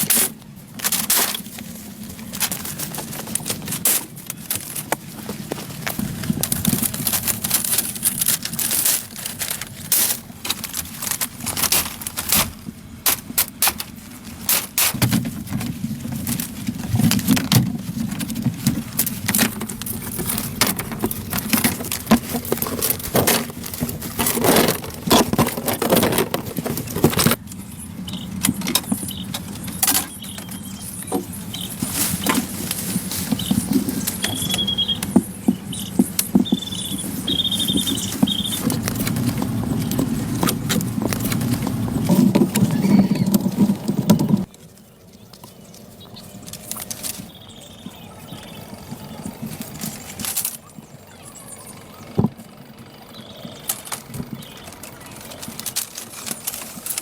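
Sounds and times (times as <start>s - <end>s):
steady low hum: 0.0s - 57.0s
short high chirps: 34.2s - 35.0s, 35.7s - 38.6s.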